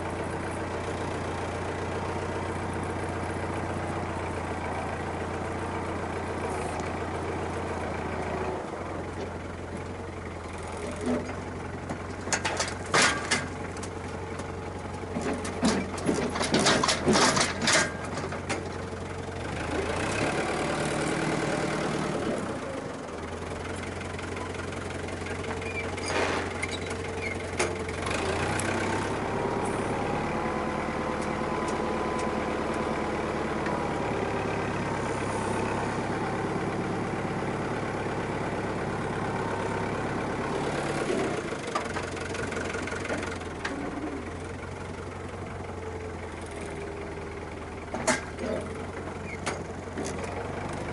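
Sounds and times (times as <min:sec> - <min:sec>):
tractor engine running: 0:00.0 - 0:50.9
sharp metallic clatters and knocks: 0:15.2 - 0:18.6.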